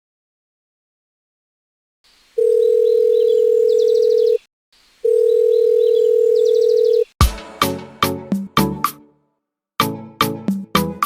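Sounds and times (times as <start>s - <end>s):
telephone ringing tone: 2.4s - 7.1s
music: 7.2s - 11.0s.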